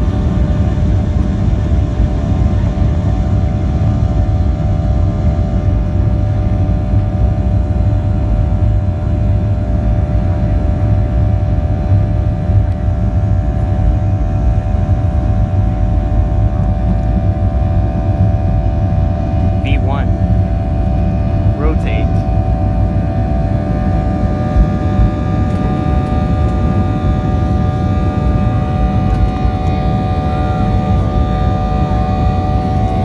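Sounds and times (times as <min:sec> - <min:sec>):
constant hum: 0:00.0 - 0:33.0
jet engines rumbling: 0:11.3 - 0:33.0.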